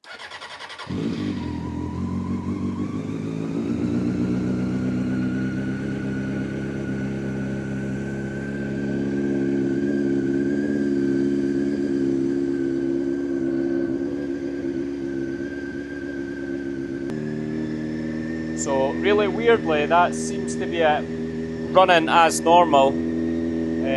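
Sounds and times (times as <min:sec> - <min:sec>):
motorcycle engine idling: 0:00.1 - 0:23.9.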